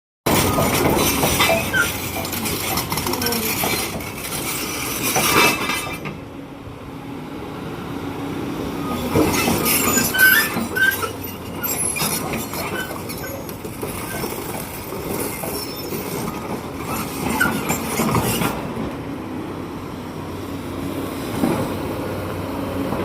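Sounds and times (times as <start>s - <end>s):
excavator working: 0.2s - 23.0s
metallic clanks and squeaks: 0.3s - 6.2s, 9.0s - 18.6s.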